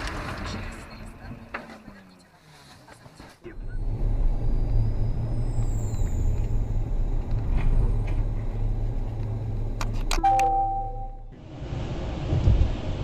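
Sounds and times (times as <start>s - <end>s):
engine and road rumble: 0.0s - 13.0s
electronic tone: 10.2s - 11.3s.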